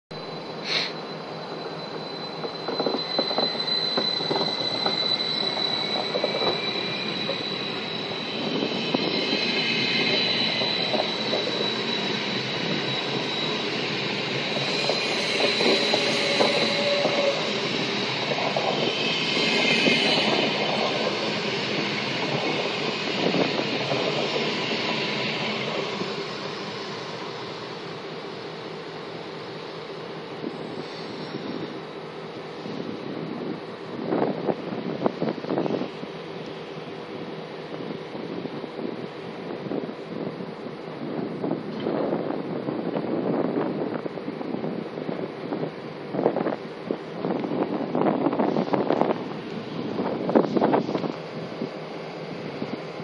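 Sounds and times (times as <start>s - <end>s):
high wheel squeal: 0.1s - 32.8s
train wheels rolling and clattering: 0.2s - 40.3s.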